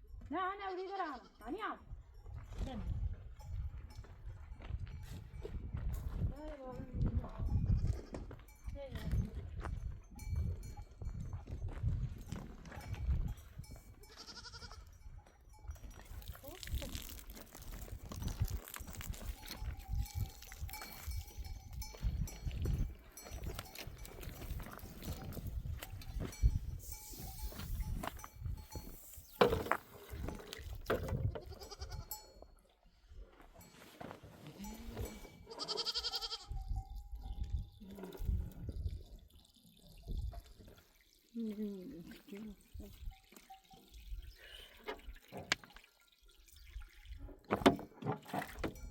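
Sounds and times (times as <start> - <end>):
sheep and goats: 0.0 - 47.9
sheep or goat bleating: 14.0 - 15.0, 31.4 - 32.3, 35.4 - 36.6.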